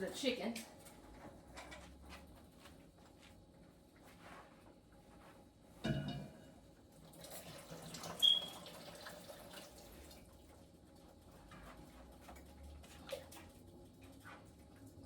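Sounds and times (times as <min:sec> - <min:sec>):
liquid pouring: 0:07.1 - 0:10.3.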